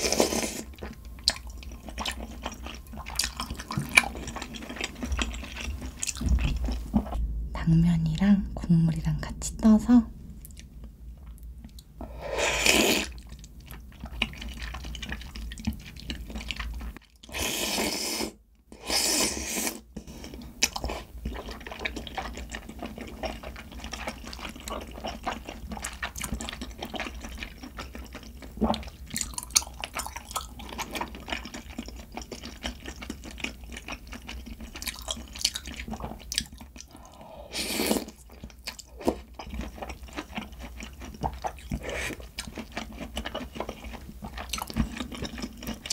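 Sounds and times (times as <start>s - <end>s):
slurping noodles and broth: 0.0s - 0.7s, 12.0s - 13.2s, 17.3s - 20.4s, 37.2s - 38.2s, 41.7s - 42.3s
wet chewing: 0.0s - 7.2s, 12.7s - 17.3s, 20.0s - 37.2s, 37.8s - 45.9s.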